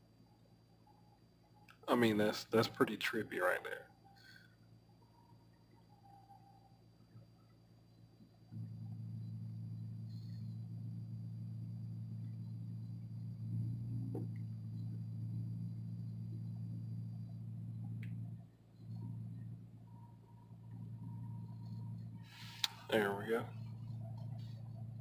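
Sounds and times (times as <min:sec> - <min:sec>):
car engine idling: 0:08.5 - 0:25.0.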